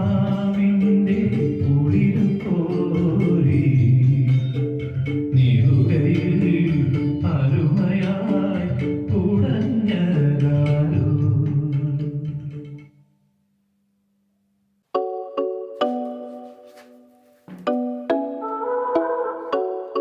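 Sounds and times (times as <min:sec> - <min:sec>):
music with singing guitar and bass: 0:00.0 - 0:12.8.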